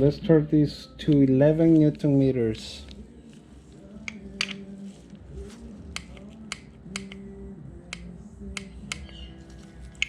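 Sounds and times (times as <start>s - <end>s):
torque wrench clicks: 6.0s - 7.2s.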